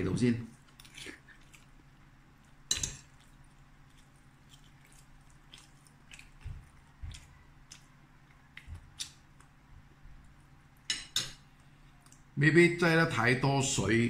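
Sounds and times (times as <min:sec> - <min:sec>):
person chewing rice: 0:00.5 - 0:09.6.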